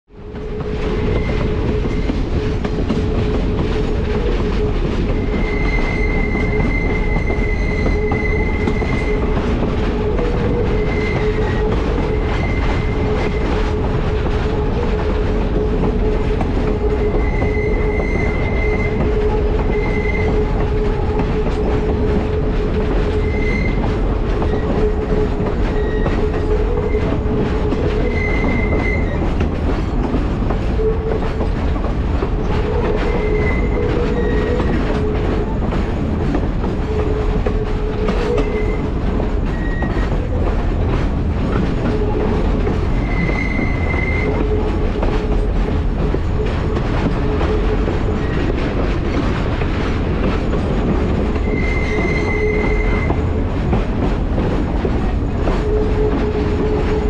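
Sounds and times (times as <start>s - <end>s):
train wheels rumbling on rails: 0.1s - 57.0s
high wheel squeals: 4.4s - 13.8s, 15.9s - 21.8s, 22.9s - 29.4s, 32.7s - 35.6s, 37.9s - 40.5s, 41.8s - 44.8s, 51.4s - 53.3s.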